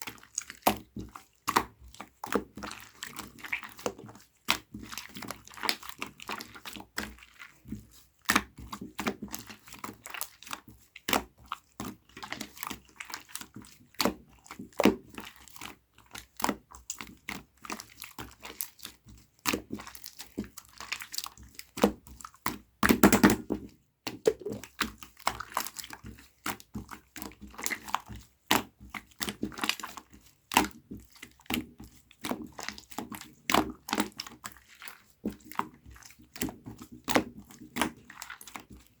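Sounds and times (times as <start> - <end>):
slime squished by hand: 24.3 - 24.6.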